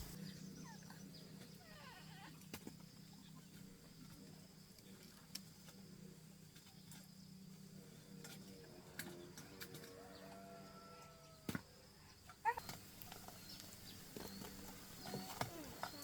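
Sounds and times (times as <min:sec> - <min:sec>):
faint bird calls: 0:00.0 - 0:04.2, 0:09.0 - 0:16.0.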